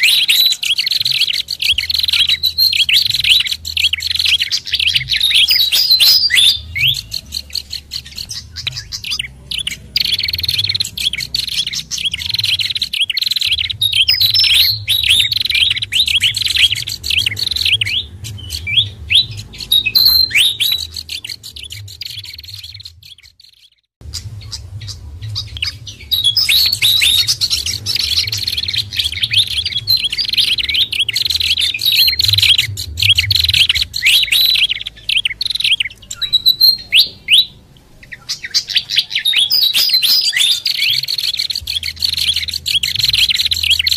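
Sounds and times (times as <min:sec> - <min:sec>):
songbirds chirping and trilling: 0:00.0 - 0:43.9
low rumble: 0:06.5 - 0:23.1, 0:24.0 - 0:38.0.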